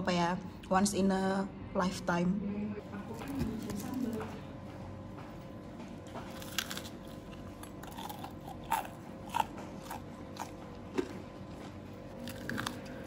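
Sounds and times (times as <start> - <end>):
crunchy biting and chewing: 6.0 - 13.0.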